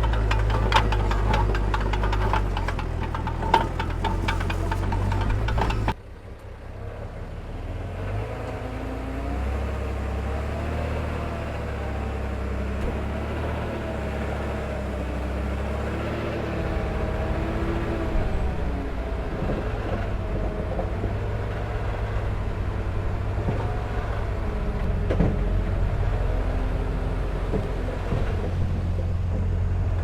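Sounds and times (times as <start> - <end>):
diesel engine clattering knocks: 0.0 - 6.0, 23.0 - 30.0
diesel engine rumble: 0.0 - 30.0.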